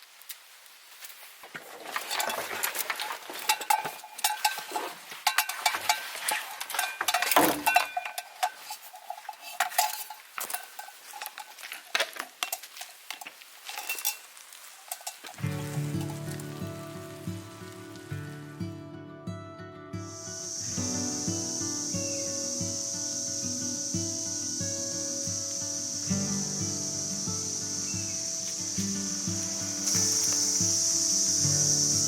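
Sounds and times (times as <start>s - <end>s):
metal gear jingling: 29.8s - 30.6s.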